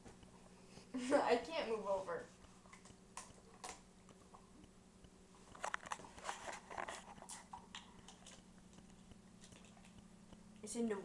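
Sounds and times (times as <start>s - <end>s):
low steady hum: 0.0s - 11.0s
faint clicks and crackles: 2.3s - 10.6s.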